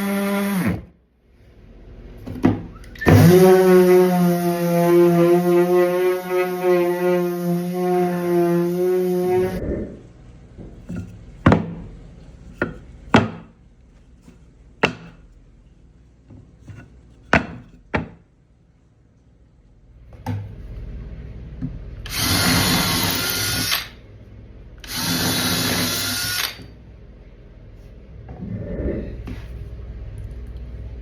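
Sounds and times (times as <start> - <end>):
power tool running: 3.0 - 9.6, 22.0 - 24.0, 24.8 - 26.7.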